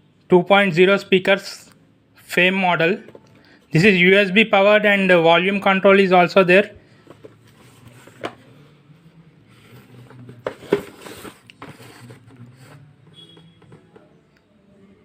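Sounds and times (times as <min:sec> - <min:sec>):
packaging rustling and scraping: 0:06.9 - 0:08.5, 0:09.6 - 0:13.9.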